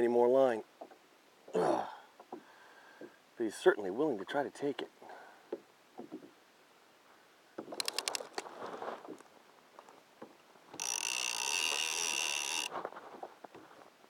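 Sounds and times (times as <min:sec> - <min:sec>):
handling rustle: 0:07.6 - 0:14.0
reel clicks: 0:07.7 - 0:08.5, 0:10.7 - 0:12.8
fishing reel drag whirring: 0:10.8 - 0:12.7.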